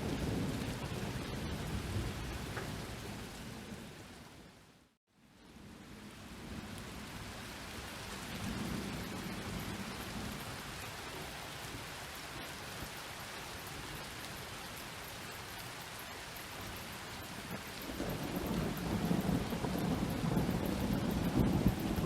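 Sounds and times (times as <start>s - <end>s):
low rumble of thunder: 0.0s - 4.3s, 5.5s - 11.9s, 17.2s - 22.0s
steady rain falling: 0.0s - 22.0s.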